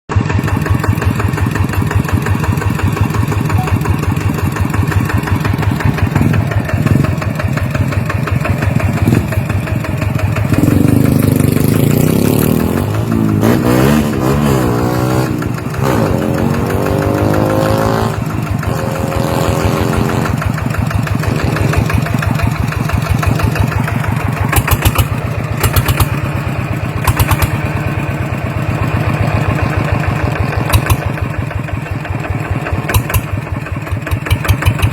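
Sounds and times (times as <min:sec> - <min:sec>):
diesel engine chugging: 0:00.1 - 0:34.9
sharp clicks: 0:24.5 - 0:26.2, 0:27.0 - 0:27.6, 0:30.7 - 0:31.1, 0:32.9 - 0:33.4.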